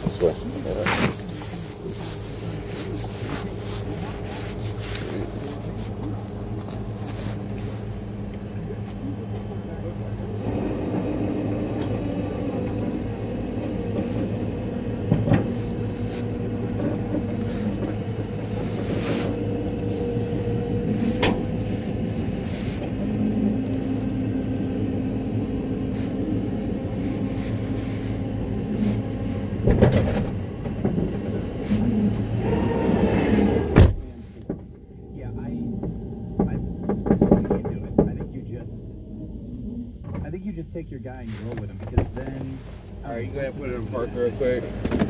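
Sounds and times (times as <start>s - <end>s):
steady whine: 0.0s - 45.0s
tow truck engine running: 0.0s - 45.0s.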